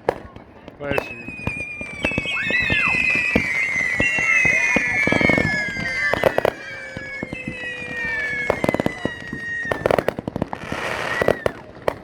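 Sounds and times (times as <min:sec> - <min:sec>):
firework crackles: 0:00.0 - 0:12.0
hissing rush: 0:00.9 - 0:10.1
firework whistle falling in pitch: 0:00.9 - 0:11.6.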